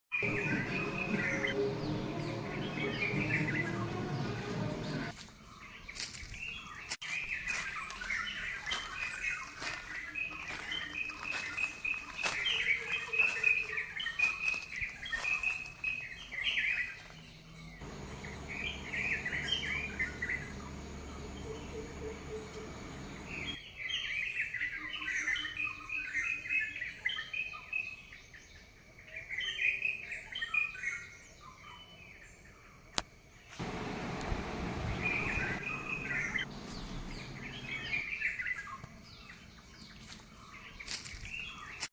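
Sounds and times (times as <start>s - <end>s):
small birds chirping: 0.2s - 23.6s, 33.6s - 41.9s.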